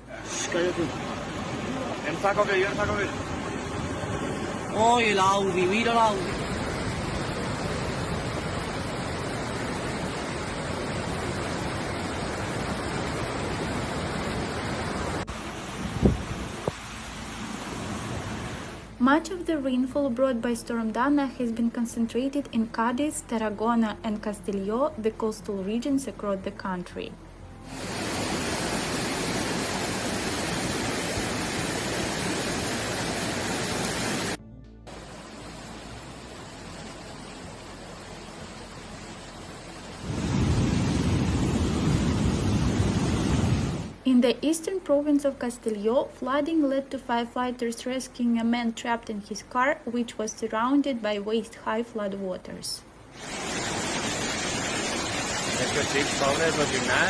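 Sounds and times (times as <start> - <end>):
floodwater rushing: 0.0 - 19.0, 27.7 - 44.0, 53.0 - 57.0.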